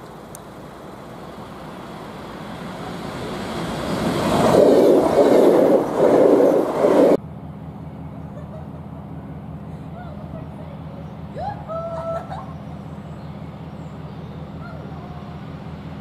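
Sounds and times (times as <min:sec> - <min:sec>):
train passing close by: 0:00.0 - 0:16.0.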